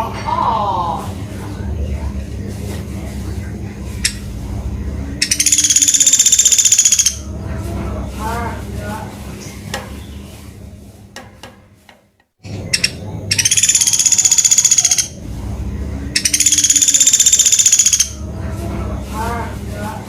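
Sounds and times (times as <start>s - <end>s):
low steady hum: 0.0s - 20.0s
woodpecker rattling call: 4.0s - 4.3s, 5.2s - 7.2s, 12.7s - 15.2s, 16.2s - 18.2s.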